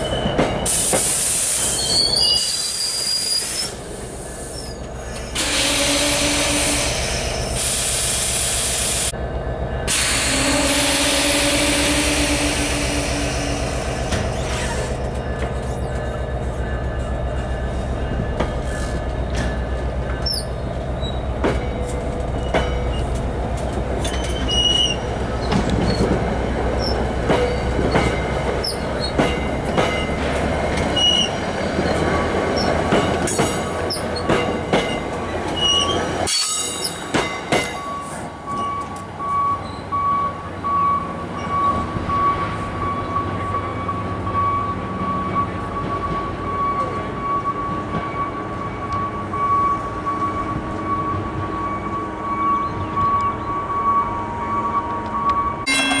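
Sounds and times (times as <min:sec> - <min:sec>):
distant train: 0:00.0 - 0:56.0
train low drone: 0:03.4 - 0:56.0.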